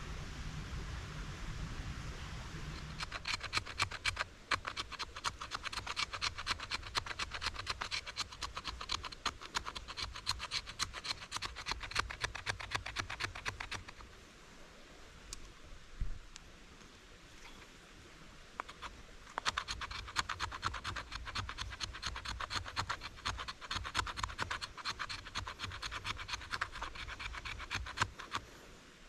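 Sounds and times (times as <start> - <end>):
tool scraping over wood: 2.8 - 14.0, 18.6 - 28.4
faint clicks: 18.6 - 28.5.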